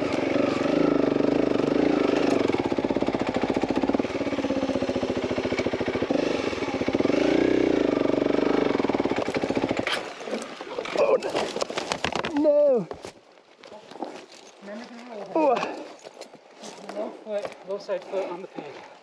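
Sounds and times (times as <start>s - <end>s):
motorcycle engine running at low speed: 0.0s - 10.1s.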